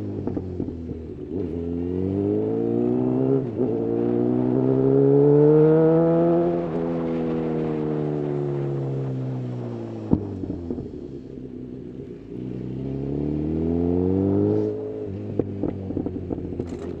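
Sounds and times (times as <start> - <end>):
motorcycle engine revving: 0.0 - 17.0
exhaust pops and crackles: 10.0 - 12.2, 15.1 - 17.0.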